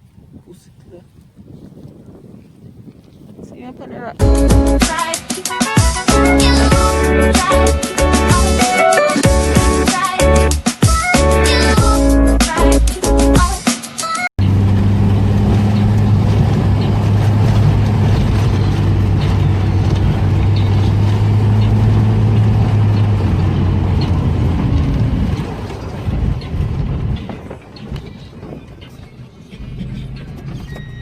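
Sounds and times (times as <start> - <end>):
road noise: 14.4 - 31.0
vehicle engine droning: 14.4 - 31.0.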